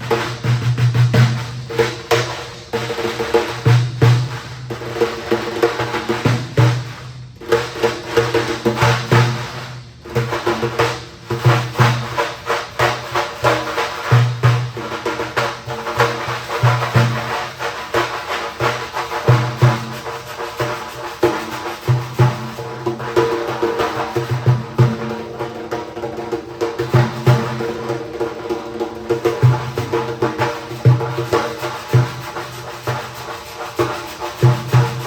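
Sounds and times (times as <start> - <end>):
rhythmic percussion music: 0.0 - 35.0.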